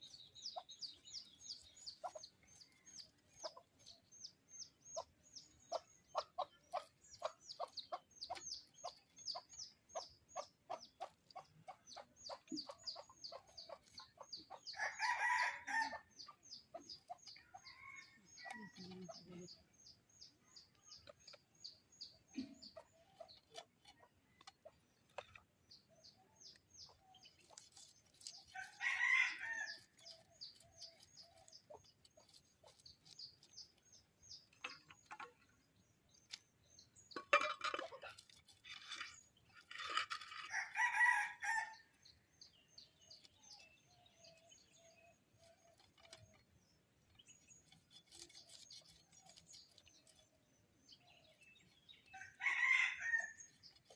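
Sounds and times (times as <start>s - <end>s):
rooster crowing: 52.4s - 53.4s.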